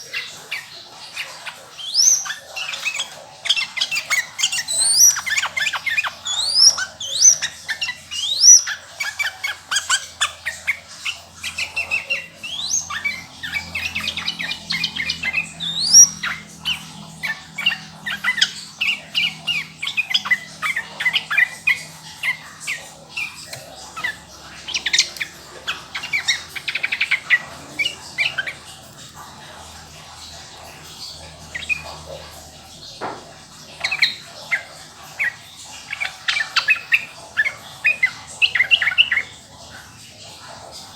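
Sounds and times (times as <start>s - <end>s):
bird chirping and whistling: 0.1s - 28.6s.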